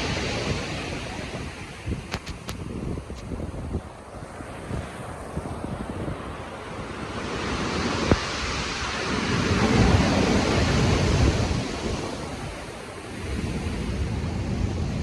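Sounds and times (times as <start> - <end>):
stormy sea surf: 0.0 - 15.0
wind: 0.0 - 15.0.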